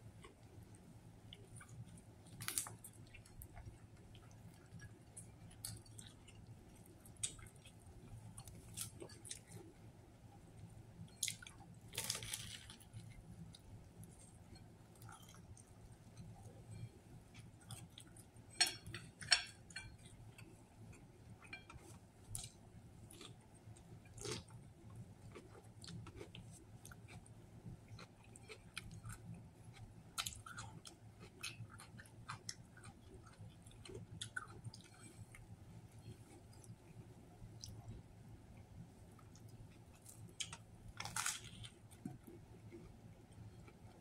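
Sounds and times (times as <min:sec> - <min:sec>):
faint low hum: 0:00.0 - 0:44.0
person chewing: 0:11.1 - 0:24.6, 0:25.3 - 0:27.3, 0:27.9 - 0:35.4, 0:39.2 - 0:44.0.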